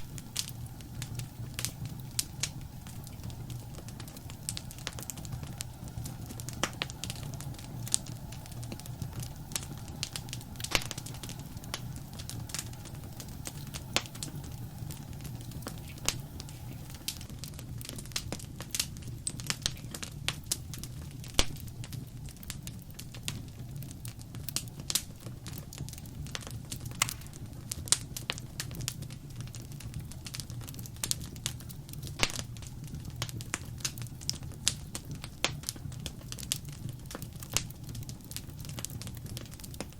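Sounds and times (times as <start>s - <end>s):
low rumble of flames: 0.0s - 39.9s
wood fire pops and snaps: 0.0s - 39.9s.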